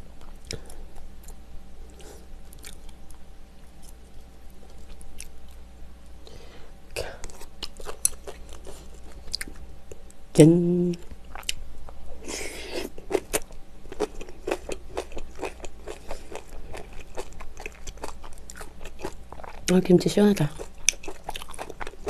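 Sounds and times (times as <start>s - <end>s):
wet chewing and crunching: 0.2s - 5.6s, 7.2s - 10.0s, 11.3s - 12.0s, 12.7s - 22.0s
person humming: 10.4s - 11.0s.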